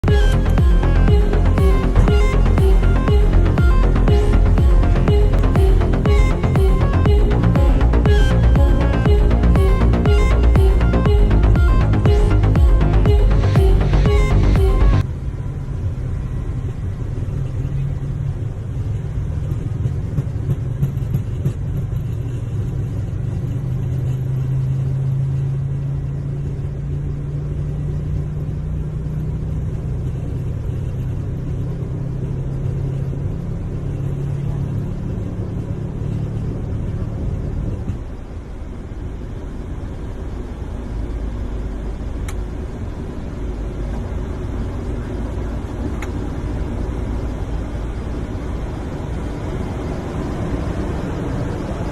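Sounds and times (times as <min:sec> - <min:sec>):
jet engine rumble: 0:31.8 - 0:51.9.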